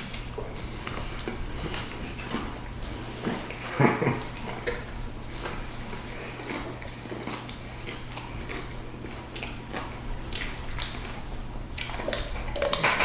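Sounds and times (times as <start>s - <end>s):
chewing sandwich with soft crunches: 0.0s - 13.0s.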